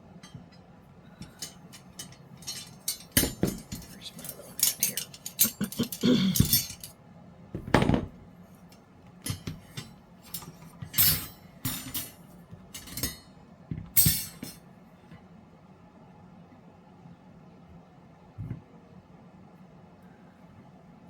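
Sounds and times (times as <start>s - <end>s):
trays knocking and clinking: 1.2s - 6.9s, 9.3s - 12.2s.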